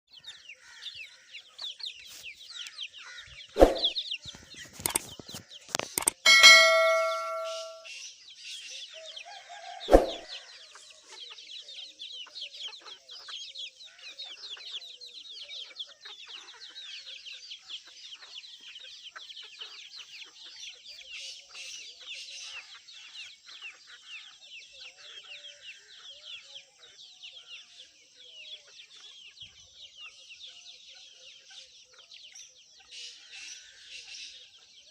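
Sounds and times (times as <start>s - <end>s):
metallic clang: 6.1s - 7.9s, 9.9s - 10.2s.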